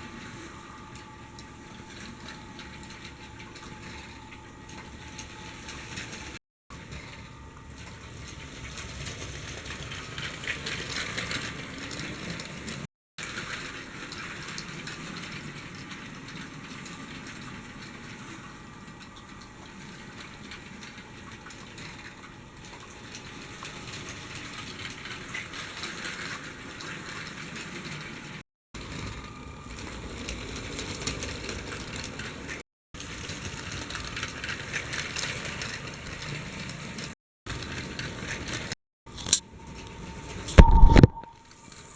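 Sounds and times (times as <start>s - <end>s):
toy train rumbling on plastic track: 5.2s - 18.4s, 23.1s - 40.0s.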